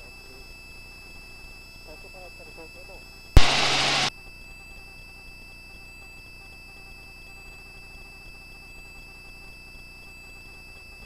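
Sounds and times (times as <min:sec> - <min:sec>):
faint electronic hum: 0:03.4 - 0:04.1
thin high whine: 0:03.4 - 0:04.1.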